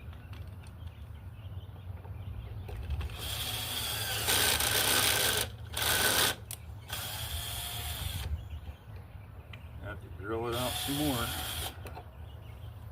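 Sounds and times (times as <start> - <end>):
power drill boring into wood: 3.1 - 8.3, 10.5 - 11.8.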